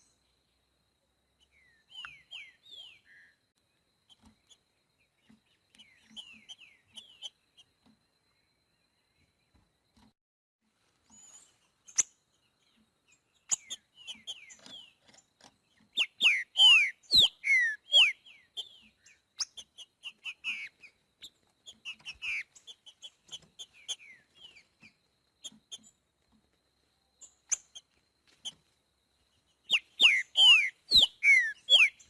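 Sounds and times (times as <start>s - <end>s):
bird whistling song: 1.4s - 3.4s, 5.8s - 7.4s, 13.4s - 15.0s, 15.9s - 24.7s, 29.6s - 32.0s.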